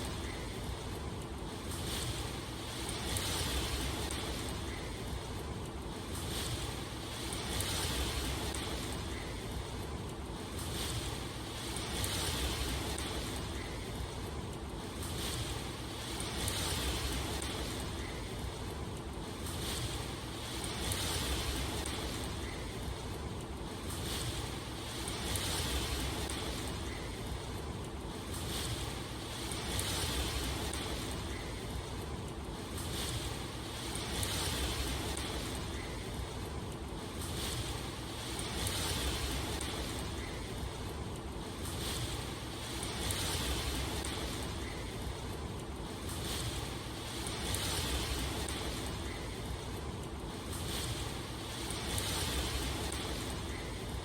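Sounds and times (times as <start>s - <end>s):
rushing water: 0.0s - 54.0s
steady rain: 0.0s - 54.0s.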